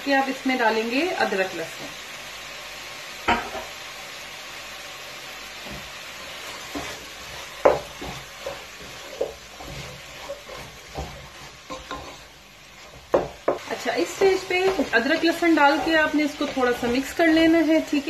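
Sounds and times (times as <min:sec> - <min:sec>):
chicken sizzling in oil: 0:00.0 - 0:18.0
wooden spoon knocking pot: 0:07.6 - 0:09.4, 0:12.9 - 0:17.2.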